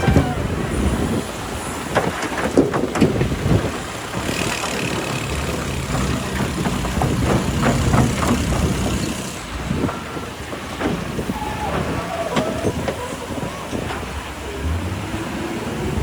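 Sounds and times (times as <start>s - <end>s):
diesel excavator engine running: 0.0s - 16.0s
rock and steel knocking: 1.9s - 13.0s.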